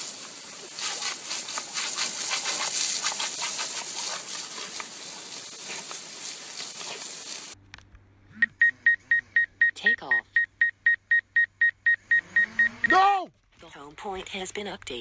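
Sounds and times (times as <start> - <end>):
hose water jet splattering: 0.0 - 7.6.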